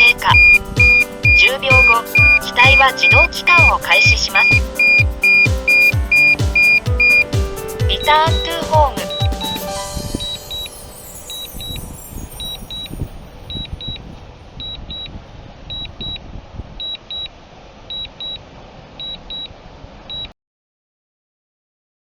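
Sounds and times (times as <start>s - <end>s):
high double beeps: 0.0s - 7.3s, 7.9s - 11.8s.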